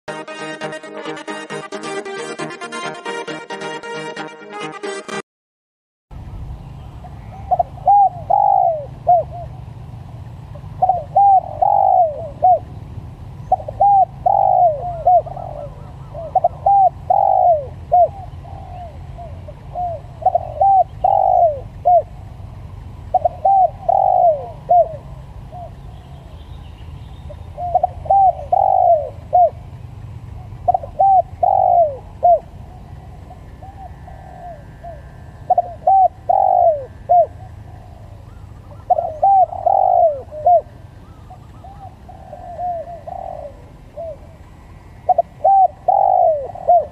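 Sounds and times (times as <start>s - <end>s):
dove cooing: 7.3s - 12.8s, 13.4s - 22.4s, 23.0s - 26.3s, 27.3s - 29.7s, 30.4s - 46.9s.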